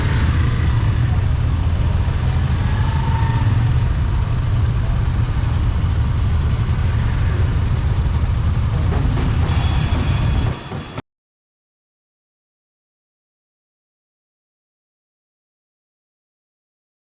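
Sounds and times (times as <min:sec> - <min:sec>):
motorcycle low rumble: 0:00.0 - 0:10.0.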